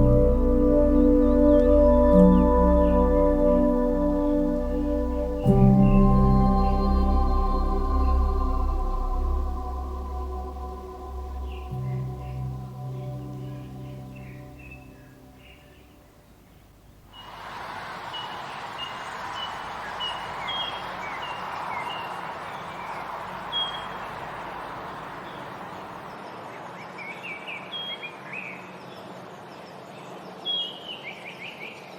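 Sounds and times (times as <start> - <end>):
birds chirping and calling: 0.0 - 15.9, 18.1 - 26.0
steady background hiss: 0.0 - 31.9.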